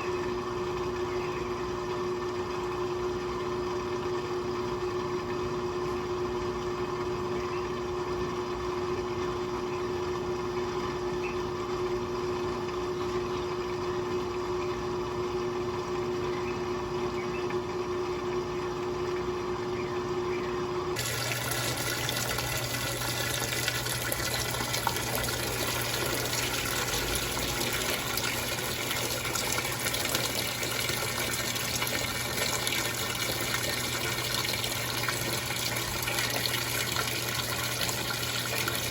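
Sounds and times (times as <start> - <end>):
low steady buzz: 0.0 - 38.9
washing machine humming: 0.0 - 38.9
water rushing into drum: 21.0 - 38.9.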